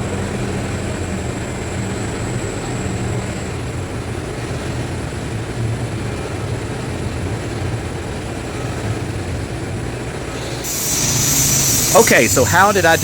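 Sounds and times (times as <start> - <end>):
welding arc hissing buzz: 10.3 - 13.0.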